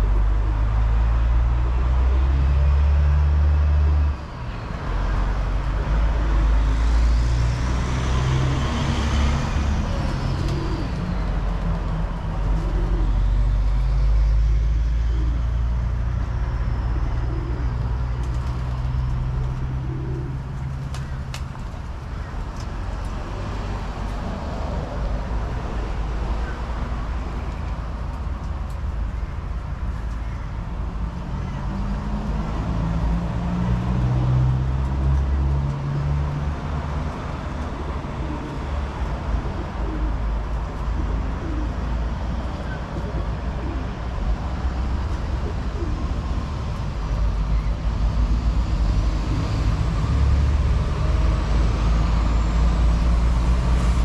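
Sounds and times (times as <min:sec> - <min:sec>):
road traffic drone: 0:00.0 - 0:54.0
pigeons cooing: 0:09.9 - 0:13.2, 0:16.8 - 0:17.9, 0:19.2 - 0:21.4, 0:37.6 - 0:44.1, 0:45.2 - 0:46.3.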